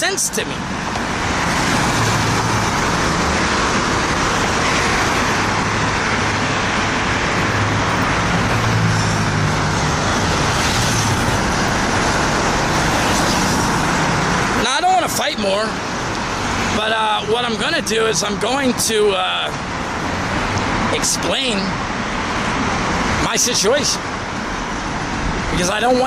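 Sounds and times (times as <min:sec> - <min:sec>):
tyres and wind hissing: 0:00.0 - 0:26.0.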